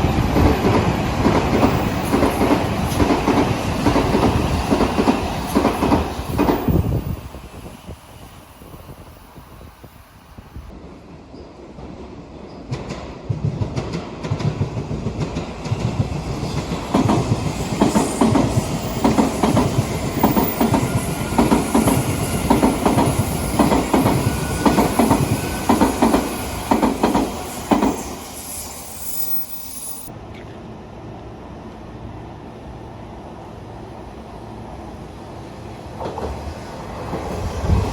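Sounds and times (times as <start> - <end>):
train wheels clacking over rail joints: 0.4 - 6.8, 12.6 - 28.2.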